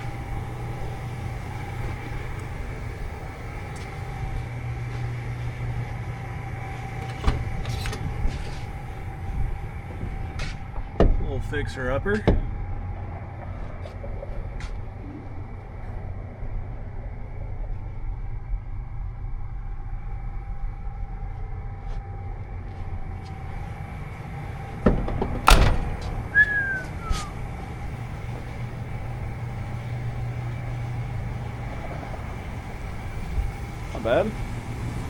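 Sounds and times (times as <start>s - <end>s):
steady low rumble: 0.0s - 35.0s
vehicle door thudding shut: 24.8s - 26.4s
short falling squeak: 25.5s - 27.4s.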